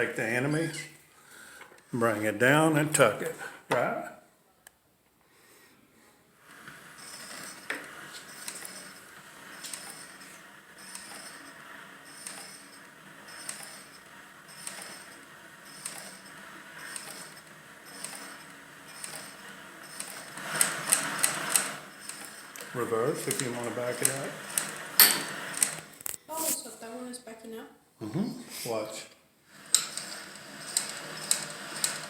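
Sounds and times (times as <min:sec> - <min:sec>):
sewing machine clacking: 0:06.5 - 0:26.0, 0:29.5 - 0:32.0
louder machine clicks: 0:07.0 - 0:25.9, 0:29.6 - 0:32.0.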